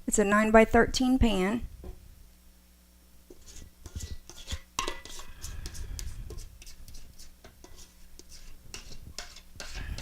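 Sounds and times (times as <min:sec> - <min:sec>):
utensil scraping mixing bowl: 0:03.3 - 0:10.0.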